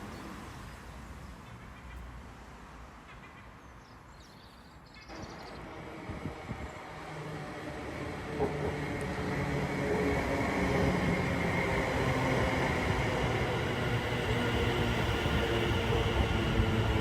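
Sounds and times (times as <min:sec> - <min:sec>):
rushing noise: 0:05.1 - 0:17.0
train approaching: 0:05.1 - 0:17.0.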